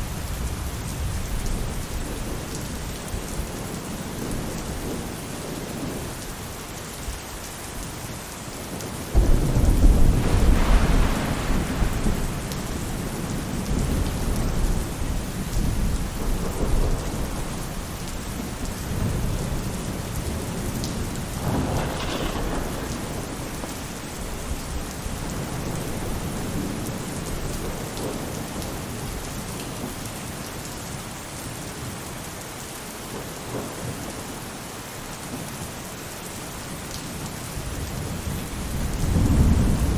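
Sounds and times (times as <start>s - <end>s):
rain on a roof: 0.0s - 39.9s
thunder rumbling: 8.6s - 29.2s, 37.6s - 39.9s.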